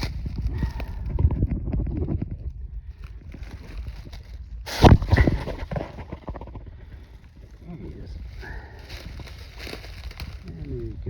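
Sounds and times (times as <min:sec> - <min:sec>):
dry leaves rustling and crackling: 0:00.0 - 0:00.8, 0:02.9 - 0:05.8, 0:07.6 - 0:11.0.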